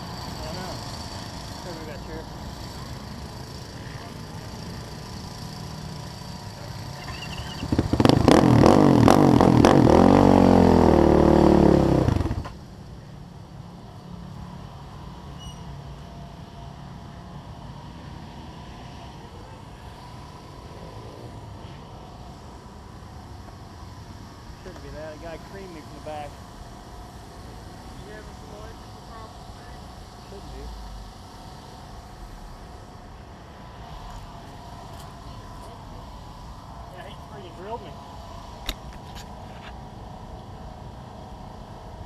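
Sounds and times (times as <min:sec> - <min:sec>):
quad engine revving: 0:00.0 - 0:12.6
low engine hum: 0:00.0 - 0:42.0.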